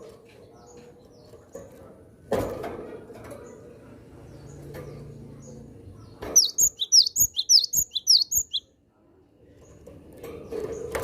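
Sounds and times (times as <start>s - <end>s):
bird chirping rapidly: 6.3s - 8.6s.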